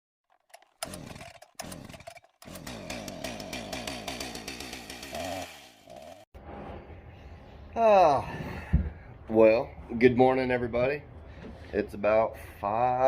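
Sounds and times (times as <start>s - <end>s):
chainsaw revving: 0.3s - 6.3s.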